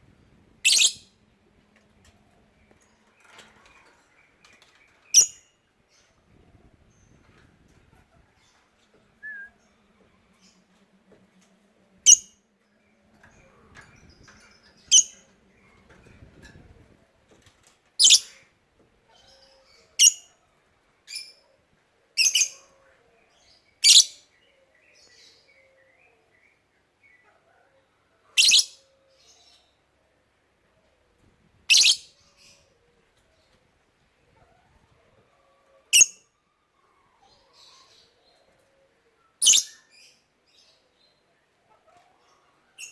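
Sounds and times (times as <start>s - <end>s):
lovebird chirping shrilly: 0.6s - 1.0s, 18.0s - 18.2s, 28.4s - 28.7s, 31.7s - 32.1s, 39.4s - 39.7s.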